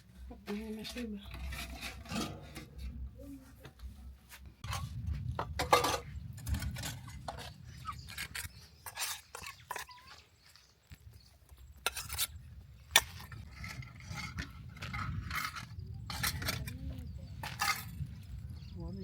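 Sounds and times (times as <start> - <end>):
pots and dishes clinking: 0.8 - 2.9, 5.4 - 7.4, 8.9 - 10.2, 17.4 - 18.0.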